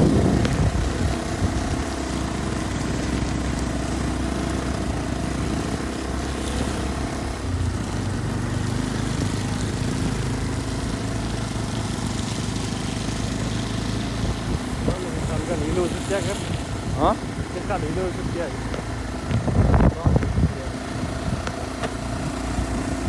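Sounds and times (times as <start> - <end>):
wind noise: 0.0 - 2.0, 14.1 - 23.0
motorcycle engine running: 0.0 - 23.0
road noise: 0.0 - 23.0.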